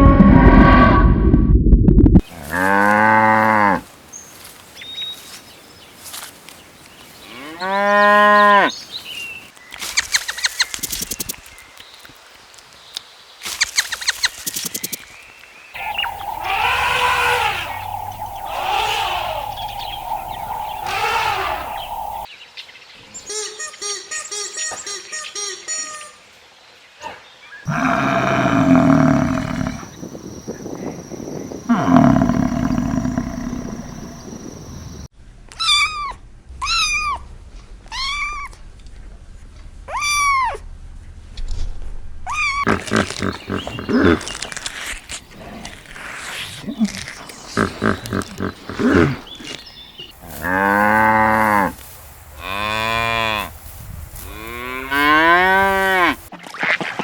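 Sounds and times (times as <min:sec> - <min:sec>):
drawn-out animal calls: 0:15.8 - 0:22.3, 0:31.7 - 0:34.3, 0:42.7 - 0:44.4, 0:46.7 - 0:51.8
steady high hum: 0:15.8 - 0:22.3.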